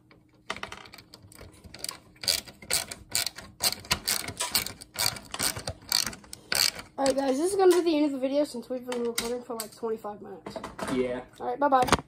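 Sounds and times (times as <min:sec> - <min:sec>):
hand tools clicking and clattering: 0:00.6 - 0:08.0.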